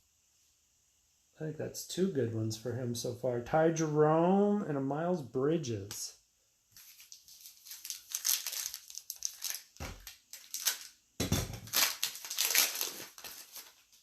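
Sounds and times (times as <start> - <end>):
wrapper tearing and crinkling: 6.8 - 14.0.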